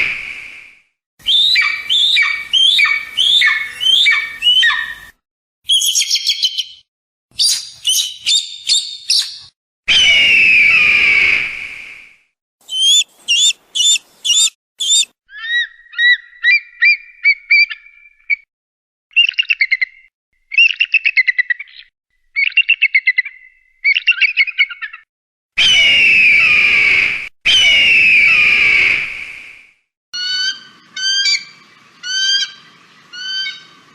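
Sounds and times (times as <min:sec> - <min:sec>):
eagle calls: 0:01.3 - 0:05.1, 0:12.6 - 0:17.9.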